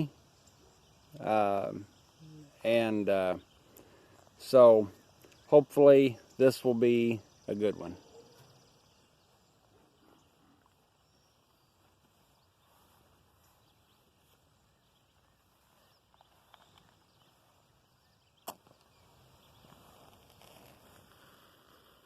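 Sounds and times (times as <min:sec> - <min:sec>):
sharp click: 0:18.4 - 0:18.9.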